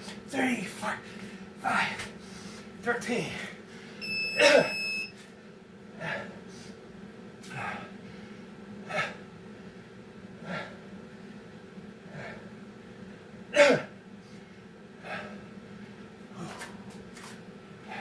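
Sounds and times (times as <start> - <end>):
man breathing hard and gasping: 10.4 - 10.8, 12.0 - 12.5, 14.3 - 15.5.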